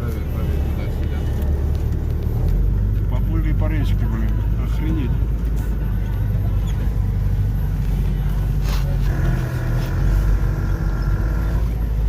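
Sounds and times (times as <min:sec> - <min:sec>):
engine and drivetrain rumble: 0:00.0 - 0:12.0
steady higher hum: 0:03.3 - 0:12.0.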